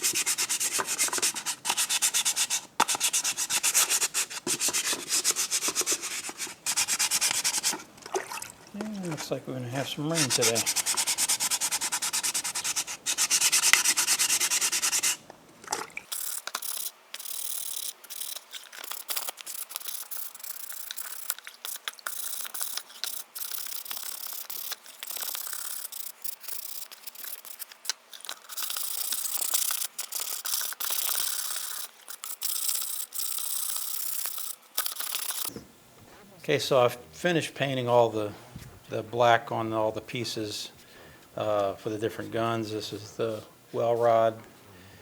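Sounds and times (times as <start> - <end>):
sandpaper wet-sanding plastic: 0.0 - 7.9, 9.9 - 15.2, 16.2 - 35.5.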